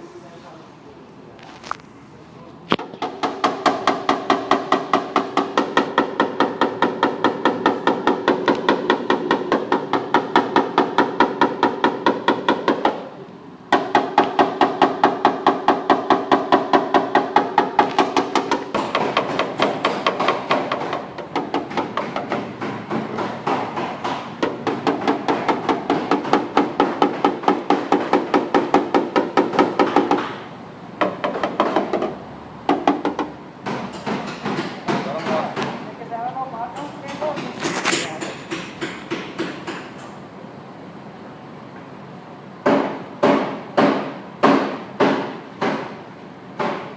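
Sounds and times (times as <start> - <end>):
hammer tapping car body panel: 2.8 - 13.1, 13.7 - 30.4, 31.0 - 35.8, 38.2 - 40.0, 42.6 - 46.0, 46.6 - 46.9.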